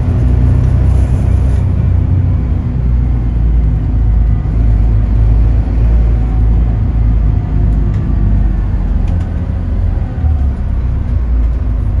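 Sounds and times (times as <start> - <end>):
bus diesel engine rumble: 0.0 - 12.0.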